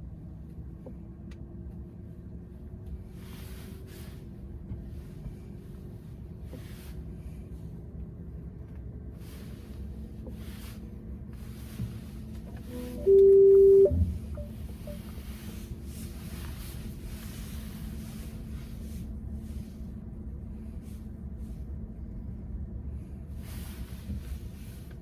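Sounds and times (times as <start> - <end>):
road and tyre rumble in car: 0.0 - 25.0
faint steady hum: 12.0 - 25.0.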